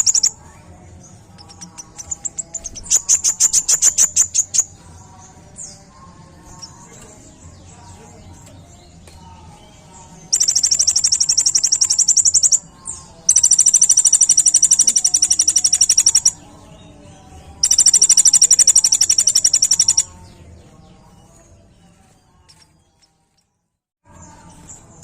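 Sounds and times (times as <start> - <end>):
sunbird high rapid trills: 0.0 - 0.5, 1.4 - 4.8, 10.3 - 16.6, 17.6 - 20.2.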